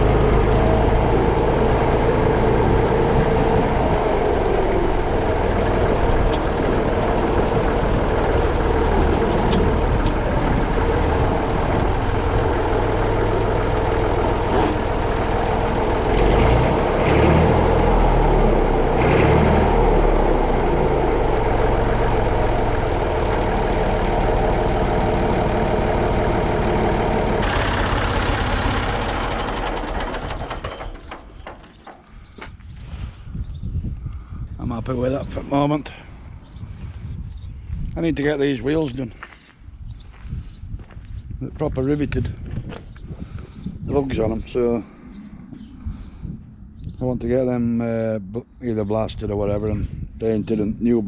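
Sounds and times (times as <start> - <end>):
tractor diesel engine running: 0.0 - 33.4.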